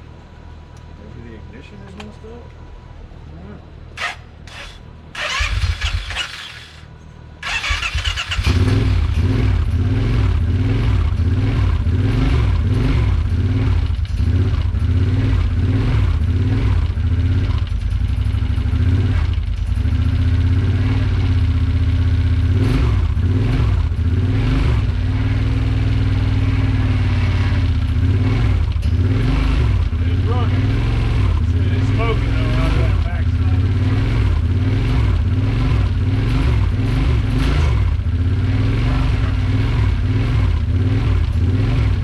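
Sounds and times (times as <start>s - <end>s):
engine cranking and revving: 4.0s - 21.4s, 26.8s - 42.0s.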